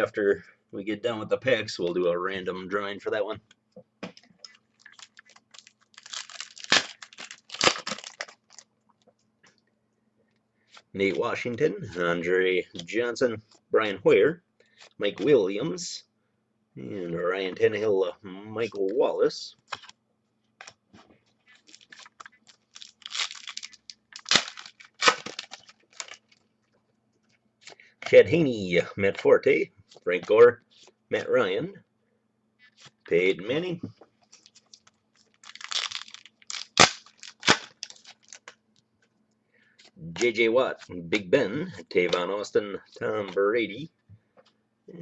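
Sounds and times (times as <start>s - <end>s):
wrapper tearing and crinkling: 4.8s - 8.7s, 21.6s - 26.4s, 34.3s - 38.6s.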